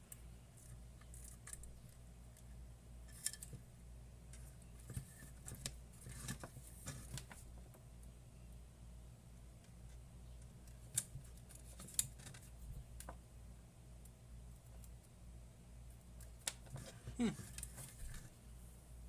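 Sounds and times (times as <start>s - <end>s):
small parts clicking and scraping: 0.0s - 3.6s, 4.3s - 7.5s, 10.6s - 13.2s
low steady hum: 0.0s - 19.0s.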